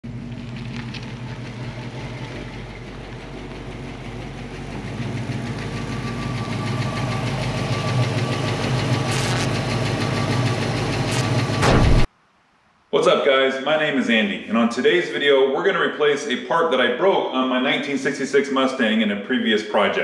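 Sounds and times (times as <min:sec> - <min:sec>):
car engine approaching: 0:00.0 - 0:12.0.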